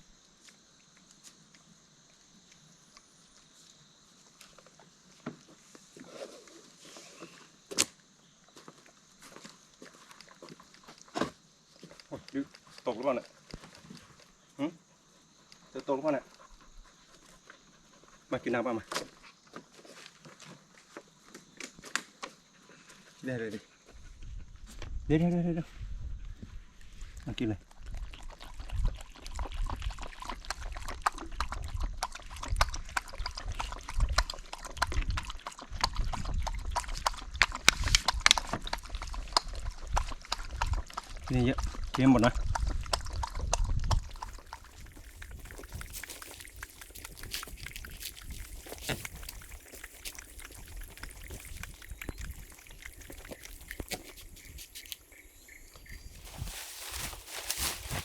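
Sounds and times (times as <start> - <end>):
dog lapping water: 27.6 - 58.0.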